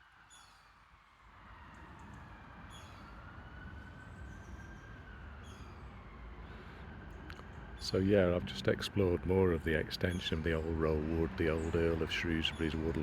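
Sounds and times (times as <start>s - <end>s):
low rumble of road traffic: 0.9s - 13.0s.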